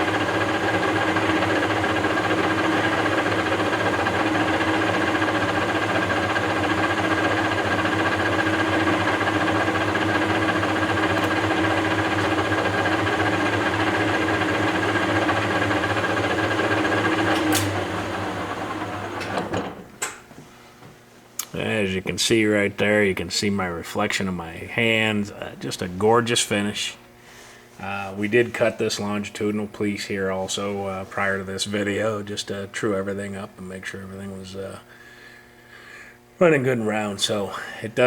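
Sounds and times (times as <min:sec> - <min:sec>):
lathe humming and whining: 0:00.0 - 0:19.9.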